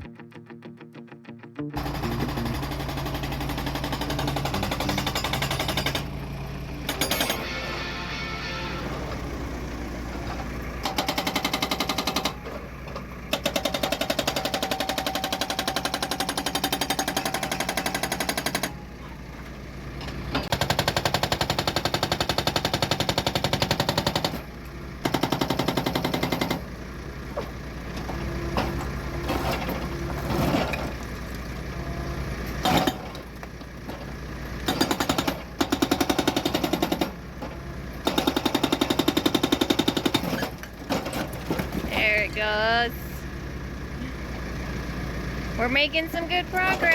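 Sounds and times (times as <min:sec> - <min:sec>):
excavator engine running: 0:00.0 - 0:46.9
hydraulic breaker hammering rock: 0:01.8 - 0:06.2, 0:06.9 - 0:07.6, 0:10.8 - 0:12.6, 0:13.3 - 0:18.8, 0:20.4 - 0:26.7, 0:32.6 - 0:33.3, 0:34.6 - 0:37.2, 0:38.0 - 0:42.0.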